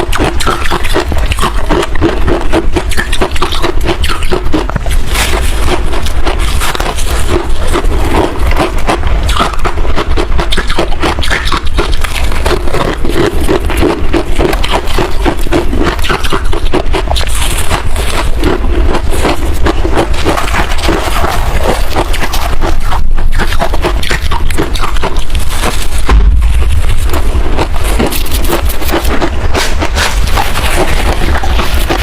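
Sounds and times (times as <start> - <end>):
chewing crunchy ice: 0.0 - 32.0
low hum: 17.7 - 32.0.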